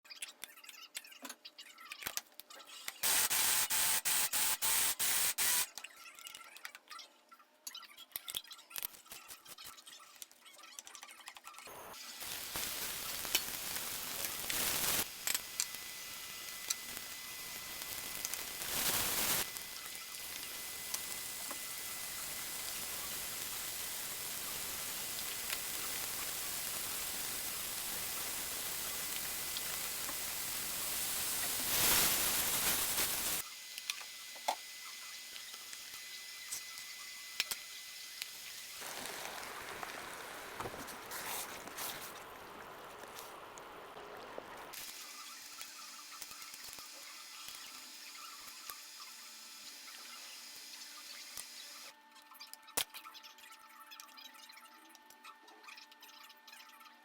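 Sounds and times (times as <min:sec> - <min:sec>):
food sizzling in a pan: 0:03.0 - 0:05.7, 0:11.7 - 0:51.9
loud noisy burst: 0:03.0 - 0:05.7.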